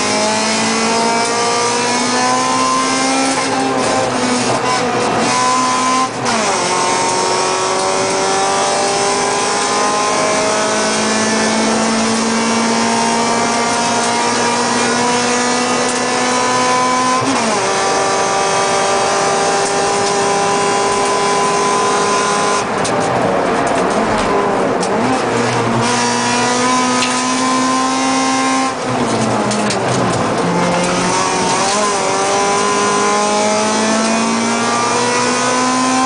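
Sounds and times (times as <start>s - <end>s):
car engine accelerating hard: 0.0s - 36.0s
road and wind noise: 0.0s - 36.0s.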